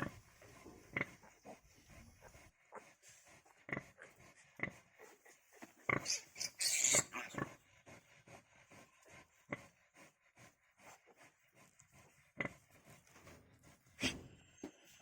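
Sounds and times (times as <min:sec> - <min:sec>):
pigs grunting: 0:00.0 - 0:14.4
pig squealing: 0:05.9 - 0:07.5.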